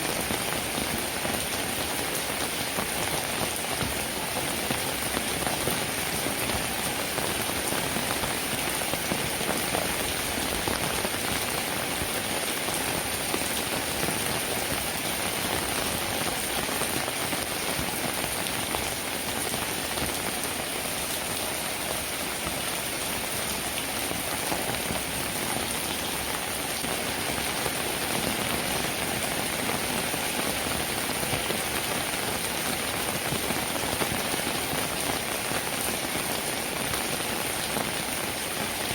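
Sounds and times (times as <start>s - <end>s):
steady rainfall: 0.0s - 38.9s.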